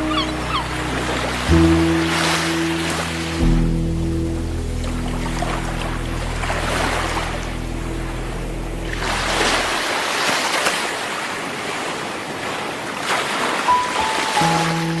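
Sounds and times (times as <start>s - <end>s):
soft music notes and chords: 0.0s - 9.8s, 13.7s - 15.0s
sea waves breaking on shore: 0.0s - 15.0s.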